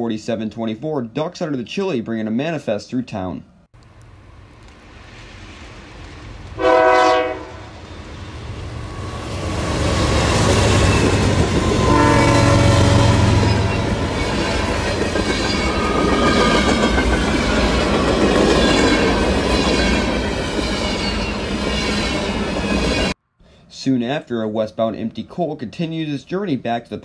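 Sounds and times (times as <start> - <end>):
locomotive horn chord: 6.6 - 7.8, 11.8 - 14.1.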